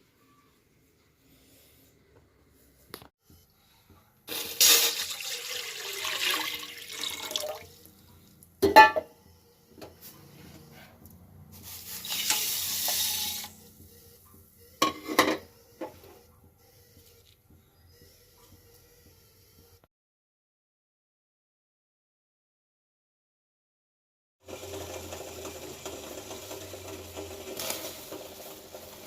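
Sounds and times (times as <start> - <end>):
water pouring: 4.3 - 7.9.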